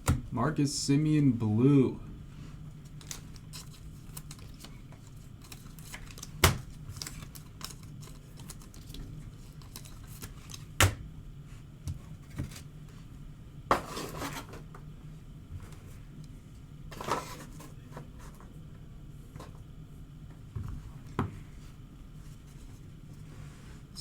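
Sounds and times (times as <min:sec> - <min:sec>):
steady low hum: 0:00.0 - 0:24.0
cards clicking and rustling: 0:02.8 - 0:10.8.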